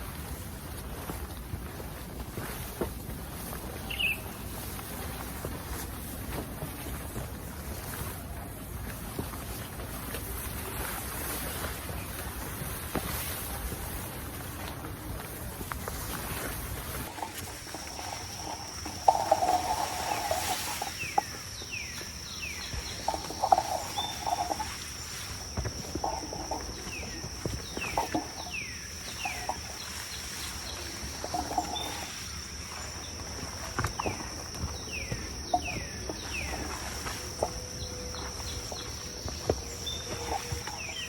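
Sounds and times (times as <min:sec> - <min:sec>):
high insect drone: 0:09.1 - 0:41.0.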